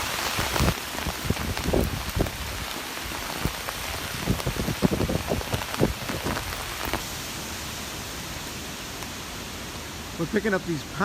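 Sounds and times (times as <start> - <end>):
gusts buffeting microphone: 0.0 - 7.4
wind and rain hiss: 0.0 - 11.0.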